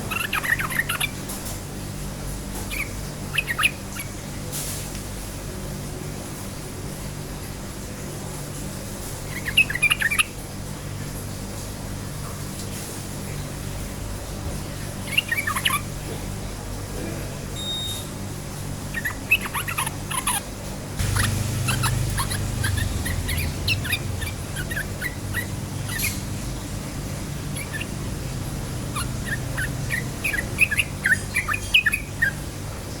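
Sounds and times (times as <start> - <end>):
bird chirping in bubbly runs: 2.7 - 4.2, 9.3 - 10.4, 15.0 - 15.9, 18.8 - 20.4, 21.0 - 32.5
steady low hum: 18.5 - 33.0.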